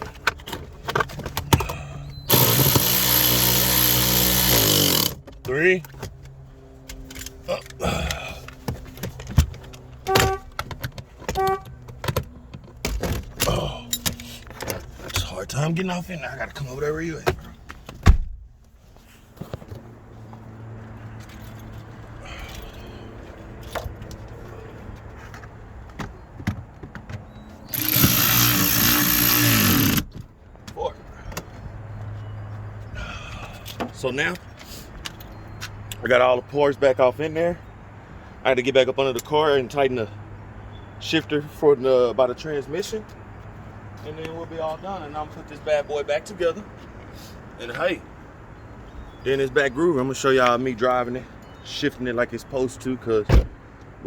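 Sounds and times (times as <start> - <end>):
tools and parts clicking and knocking: 0.0 - 7.8, 25.9 - 30.3
power drill running: 2.3 - 5.2, 27.7 - 30.0.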